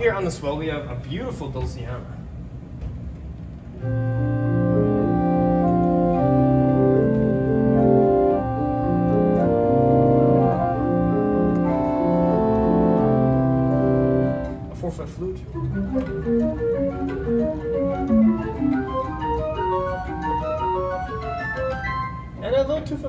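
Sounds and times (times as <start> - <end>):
pipe organ sustained chords: 3.8 - 14.8, 15.5 - 22.4.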